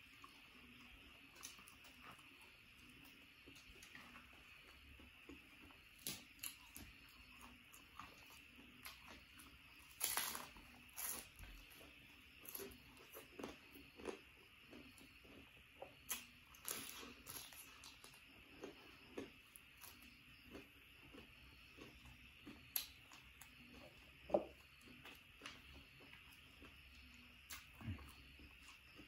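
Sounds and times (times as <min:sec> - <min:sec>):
crunchy bites: 0:09.8 - 0:29.0
person chewing: 0:12.4 - 0:29.0.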